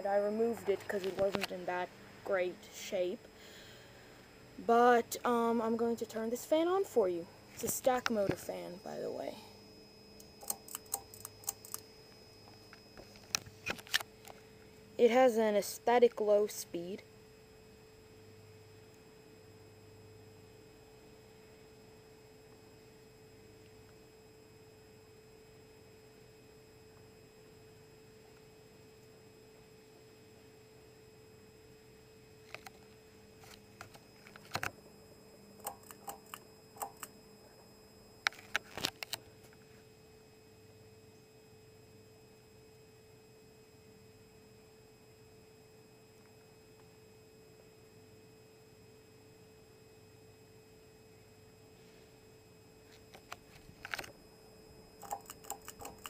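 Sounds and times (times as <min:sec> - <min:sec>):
ceiling fan motor hum: 0:00.0 - 0:56.0
sharp clicks: 0:10.2 - 0:11.8, 0:35.6 - 0:37.2, 0:55.0 - 0:56.0.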